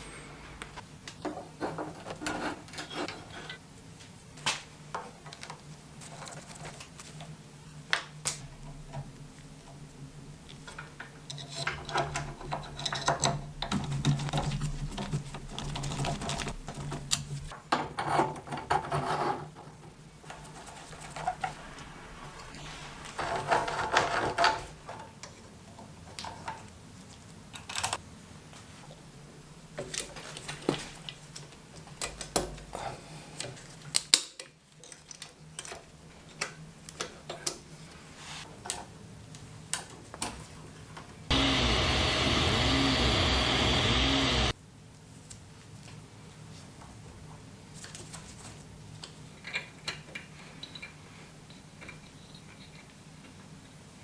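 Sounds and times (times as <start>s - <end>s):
steady low hum: 41.3s - 44.6s.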